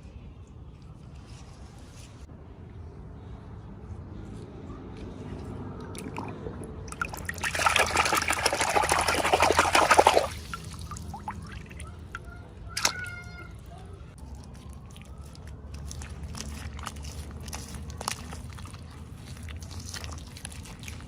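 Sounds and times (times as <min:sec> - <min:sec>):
liquid pouring: 0:05.9 - 0:11.9.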